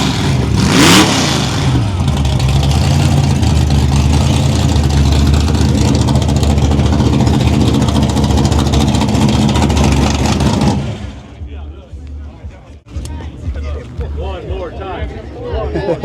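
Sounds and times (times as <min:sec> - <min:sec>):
car engine running loud: 0:00.0 - 0:11.6.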